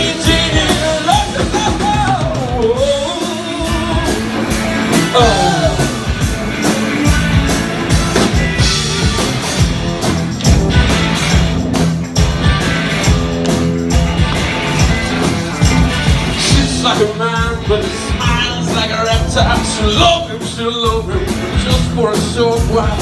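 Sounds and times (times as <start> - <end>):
electric guitar riff: 0.0 - 23.0
live rock band playing: 0.0 - 23.0
gliding vocal notes: 2.8 - 7.7.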